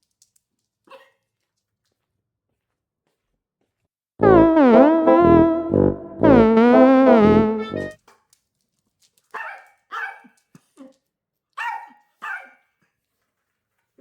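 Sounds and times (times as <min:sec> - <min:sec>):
small dog barking: 0:00.9 - 0:01.2, 0:09.4 - 0:10.4, 0:11.6 - 0:12.7
background music: 0:04.2 - 0:08.0.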